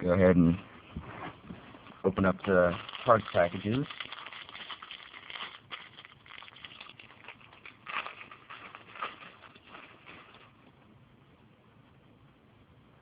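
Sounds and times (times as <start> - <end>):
plastic bags crinkling: 1.8 - 10.6.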